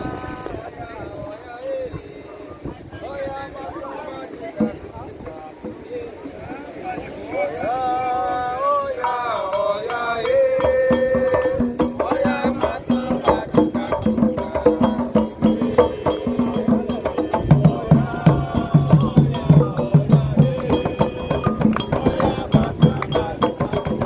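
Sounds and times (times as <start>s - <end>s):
hand drums playing: 4.6s - 6.4s, 9.0s - 24.0s
person singing: 8.5s - 24.0s
bell rhythm: 9.0s - 24.0s.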